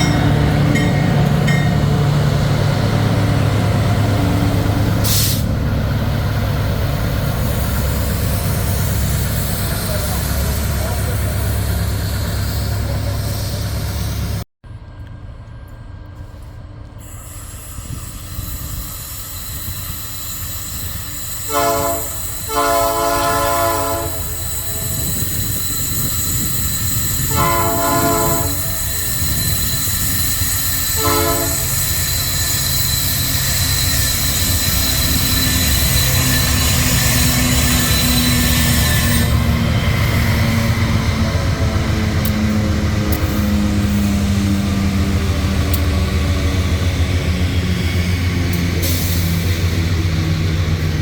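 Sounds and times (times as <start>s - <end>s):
approaching train rumble: 0.0s - 51.0s
locomotive air horn blasts: 21.5s - 24.5s, 27.2s - 29.0s, 30.9s - 32.0s.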